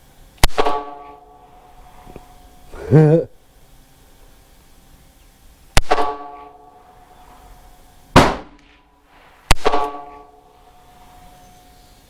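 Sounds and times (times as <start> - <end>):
revolver gunshots: 5.8 - 6.3, 8.1 - 8.9, 9.5 - 10.2.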